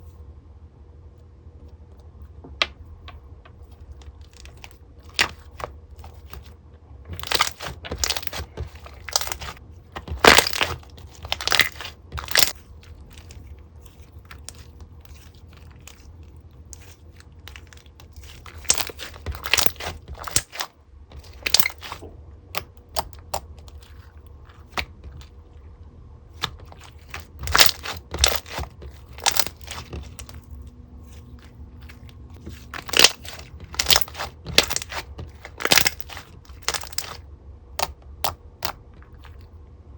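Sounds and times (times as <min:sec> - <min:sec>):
slime bubbles popping: 0:10.1 - 0:12.6, 0:18.2 - 0:20.6.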